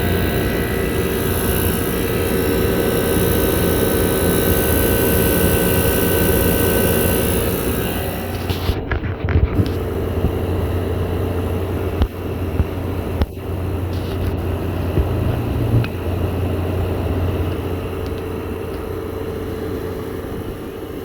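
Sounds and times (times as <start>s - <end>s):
air conditioners humming: 0.0s - 4.8s.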